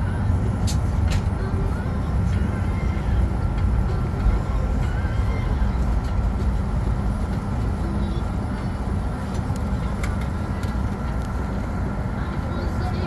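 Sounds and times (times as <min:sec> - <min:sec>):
aircraft cabin air rumble: 0:00.0 - 0:13.0.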